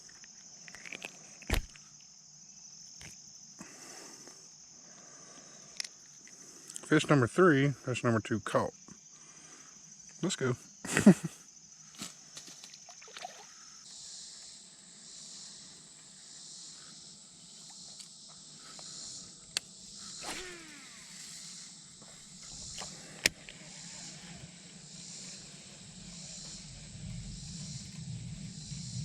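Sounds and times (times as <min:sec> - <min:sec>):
insects chorus: 0:00.0 - 0:29.0
falling whirr: 0:19.9 - 0:29.0.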